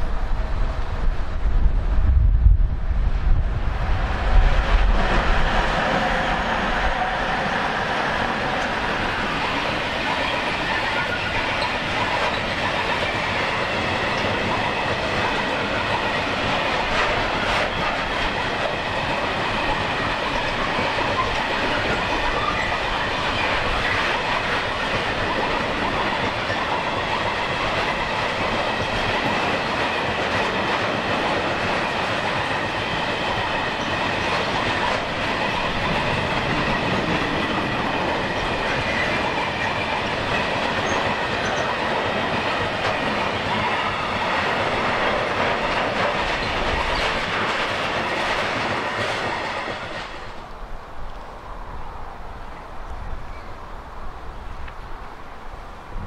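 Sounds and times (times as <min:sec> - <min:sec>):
train wheels clattering over rail joints: 0:07.4 - 0:50.4.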